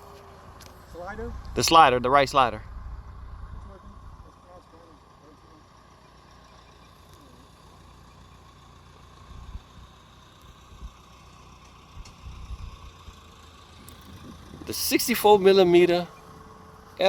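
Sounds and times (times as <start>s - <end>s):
wind buffeting microphone: 13.8s - 14.8s.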